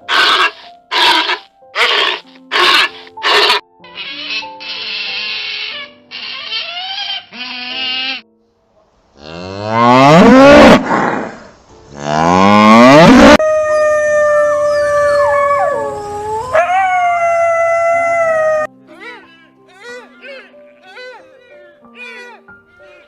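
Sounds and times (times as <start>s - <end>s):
cow mooing: 9.2s - 10.9s, 11.9s - 13.4s.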